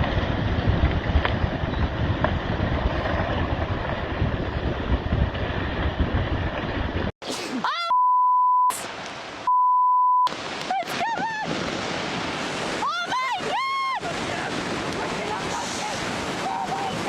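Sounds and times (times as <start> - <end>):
wind buffeting microphone: 0.0 - 7.1, 11.0 - 17.0
person shouting: 7.4 - 8.0
censor bleeps: 7.8 - 8.8, 9.5 - 10.3
water noise: 8.6 - 17.0.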